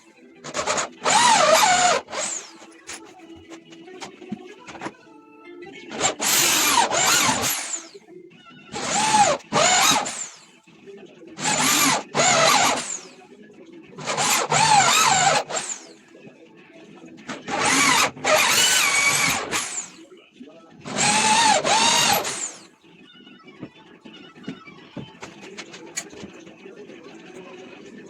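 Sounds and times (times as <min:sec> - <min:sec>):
electric drill running: 0:00.5 - 0:02.7, 0:05.9 - 0:08.0, 0:08.7 - 0:10.4, 0:11.4 - 0:13.2, 0:14.0 - 0:15.9, 0:17.5 - 0:20.0, 0:20.9 - 0:22.7.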